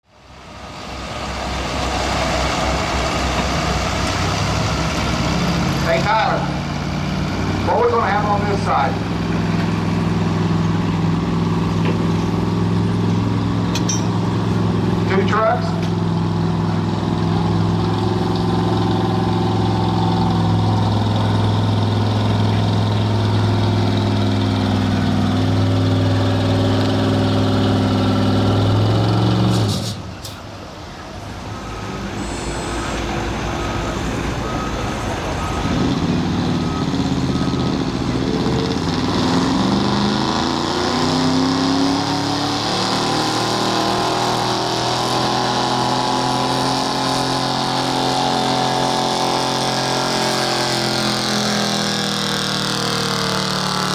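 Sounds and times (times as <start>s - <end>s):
diesel truck engine droning: 0.0s - 53.9s
air brake hiss: 29.5s - 30.4s.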